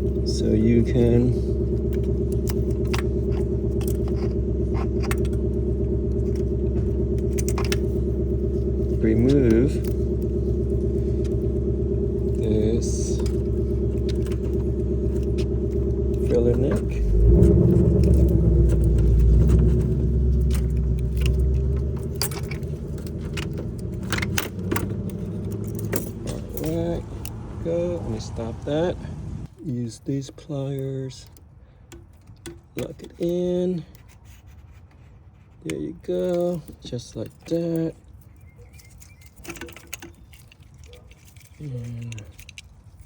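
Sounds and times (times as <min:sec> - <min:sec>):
low mechanical machine hum: 0:00.0 - 0:29.6
steady low rumble: 0:00.0 - 0:29.6
metal hand tools clinking: 0:18.0 - 0:27.4.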